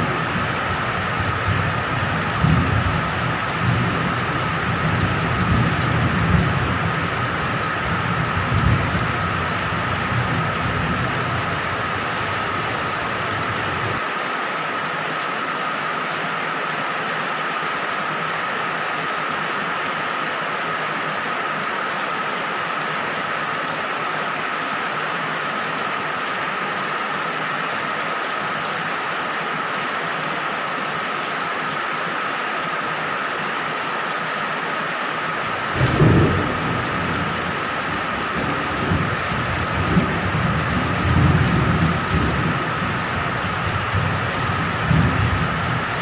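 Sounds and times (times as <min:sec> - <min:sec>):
thunder rumbling: 0:00.0 - 0:14.0, 0:35.6 - 0:46.0
rain: 0:00.0 - 0:46.0.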